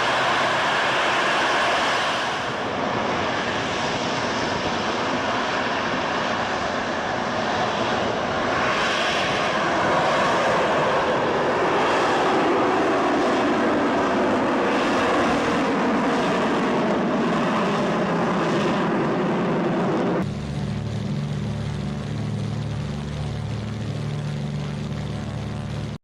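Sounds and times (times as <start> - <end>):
jet engine rush: 0.0 - 26.0
propeller engine drone: 0.0 - 26.0.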